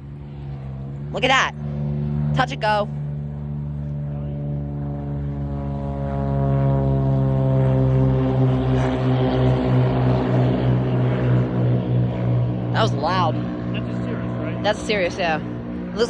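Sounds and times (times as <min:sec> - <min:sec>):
propeller plane engine: 0:00.0 - 0:16.0.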